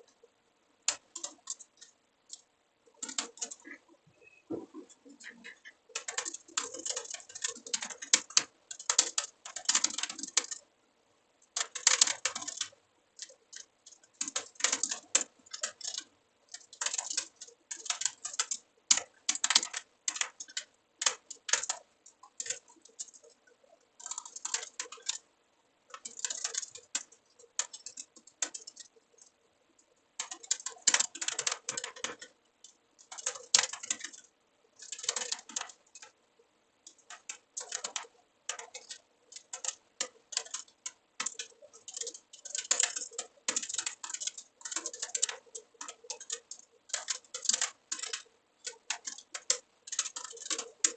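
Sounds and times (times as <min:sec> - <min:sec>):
computer keyboard typing: 0:00.9 - 0:10.7, 0:11.5 - 0:25.3, 0:25.9 - 0:36.2, 0:36.8 - 0:50.9.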